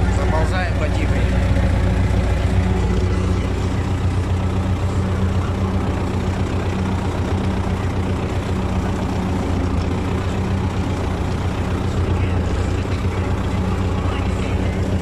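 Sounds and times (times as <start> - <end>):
tractor diesel engine droning: 0.0 - 15.0.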